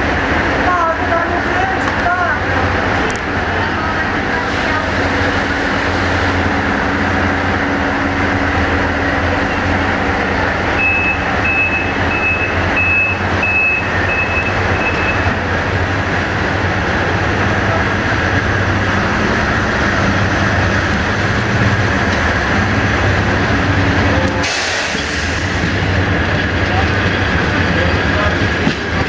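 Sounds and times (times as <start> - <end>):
train low hum: 0.0 - 29.0
high electronic warning beeps: 10.8 - 15.4.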